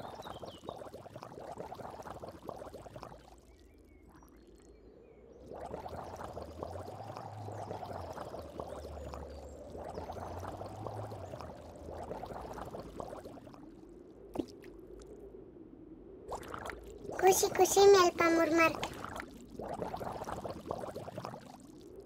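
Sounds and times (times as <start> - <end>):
water bubbling and gurgling: 0.0 - 15.3, 16.2 - 22.0.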